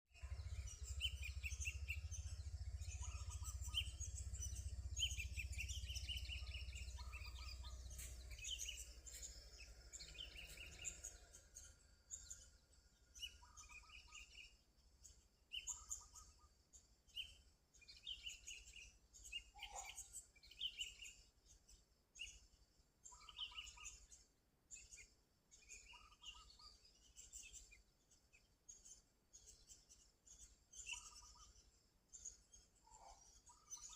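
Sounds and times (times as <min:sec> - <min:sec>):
bulbul singing: 0:00.2 - 0:14.6.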